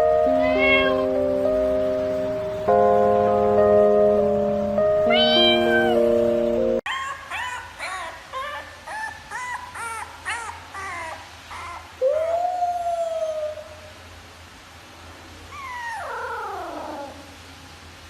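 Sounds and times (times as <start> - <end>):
animal crying and howling: 6.9 - 14.0, 15.5 - 17.4.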